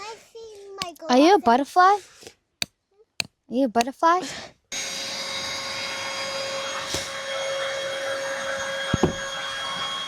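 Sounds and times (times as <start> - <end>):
electric blower motor running: 4.8 - 10.0.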